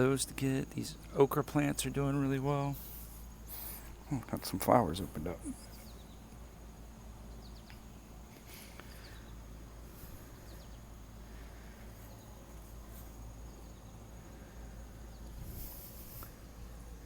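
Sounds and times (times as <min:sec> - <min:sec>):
low rumble of wind: 0:00.0 - 0:17.0
faint bird chirps: 0:03.5 - 0:17.0.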